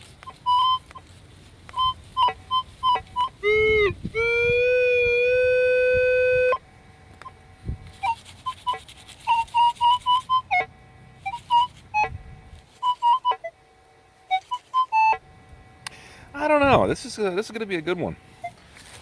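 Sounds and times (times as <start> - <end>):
metal detector high beeps: 0.2 - 1.0, 1.8 - 6.6, 18.4 - 18.6
metal detector low tone: 1.8 - 6.6.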